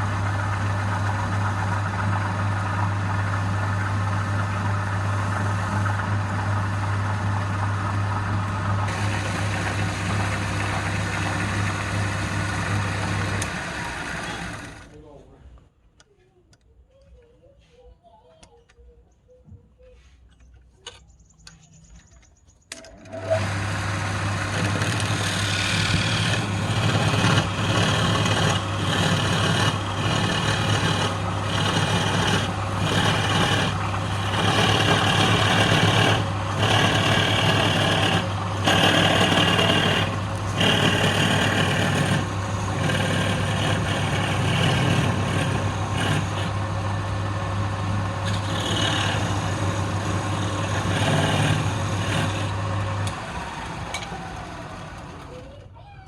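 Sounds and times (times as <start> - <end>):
tool scraping spinning wood: 0.0 - 15.0, 22.8 - 55.4
wood lathe motor hum: 0.0 - 15.0, 22.8 - 55.3.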